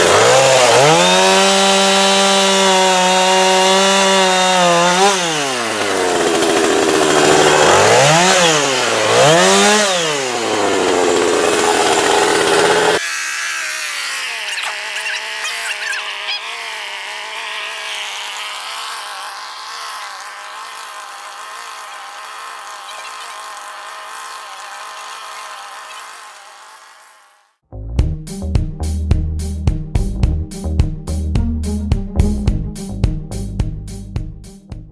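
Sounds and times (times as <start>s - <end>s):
chainsaw engine revving: 0.0s - 27.6s.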